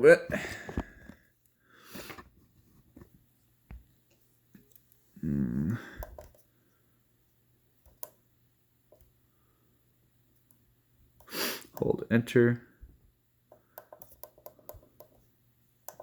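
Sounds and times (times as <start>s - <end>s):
faint electrical hum: 0.0s - 16.0s
person humming: 5.2s - 6.0s
small clicks and taps: 7.8s - 8.2s, 13.5s - 15.2s.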